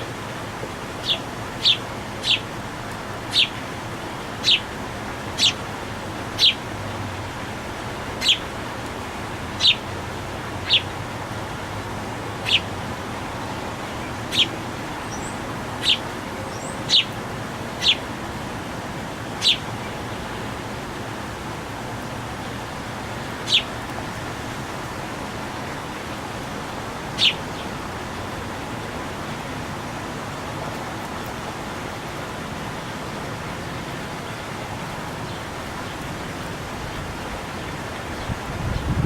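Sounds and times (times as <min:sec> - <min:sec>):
steady background noise: 0:00.0 - 0:39.0
songbird chip call: 0:01.0 - 0:02.5, 0:03.3 - 0:03.6, 0:04.4 - 0:04.7, 0:06.4 - 0:06.6, 0:08.2 - 0:08.4, 0:09.6 - 0:09.8, 0:10.6 - 0:10.9, 0:12.4 - 0:12.7, 0:14.3 - 0:17.2, 0:17.8 - 0:18.0, 0:19.4 - 0:19.7, 0:23.4 - 0:23.7, 0:27.2 - 0:27.4.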